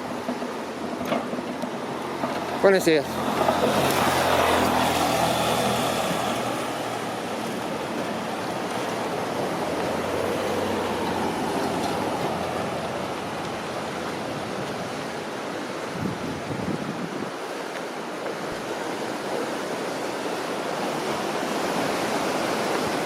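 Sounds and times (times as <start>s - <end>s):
surf: 0.0s - 23.0s
traffic noise: 0.0s - 23.0s
vehicle passing close by: 2.0s - 15.2s.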